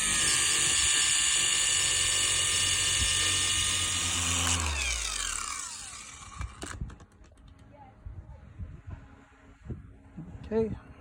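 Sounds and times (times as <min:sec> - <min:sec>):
orbital polisher motor whine: 0:00.0 - 0:06.8.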